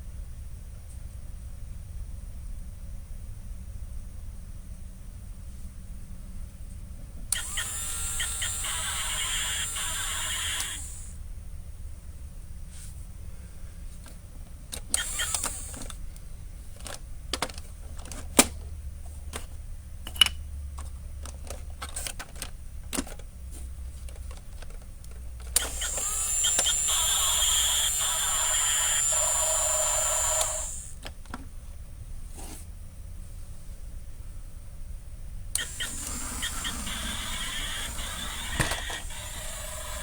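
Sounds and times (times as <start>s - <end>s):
toy truck electric motor: 7.3s - 11.2s, 14.8s - 16.0s, 25.4s - 31.1s, 35.6s - 40.0s
toy sound effect tones: 7.4s - 11.1s, 25.6s - 30.9s, 35.6s - 40.0s
sharp clicks and knocks: 35.6s - 40.0s.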